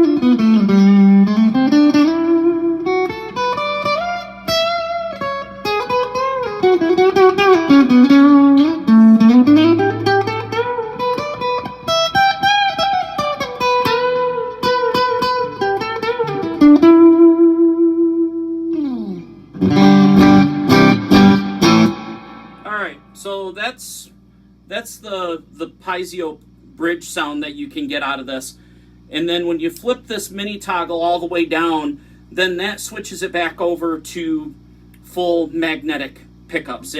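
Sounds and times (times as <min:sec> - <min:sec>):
clean electric guitar: 0:00.0 - 0:23.2.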